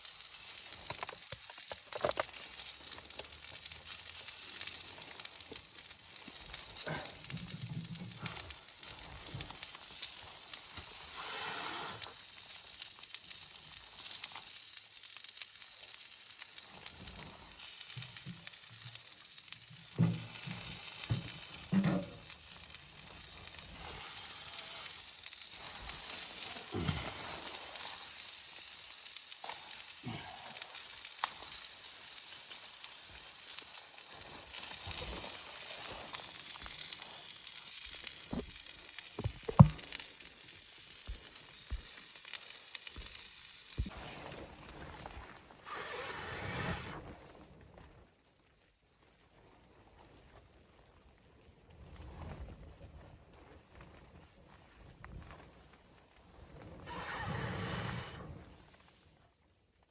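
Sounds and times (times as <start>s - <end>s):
food sizzling in a frying pan: 0.0s - 44.0s.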